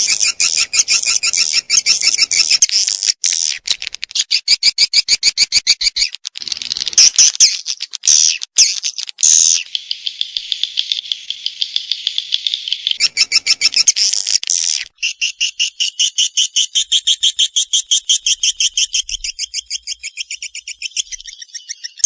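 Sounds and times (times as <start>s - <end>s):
swiftlet chirping trills: 0.0s - 2.7s, 9.6s - 14.0s.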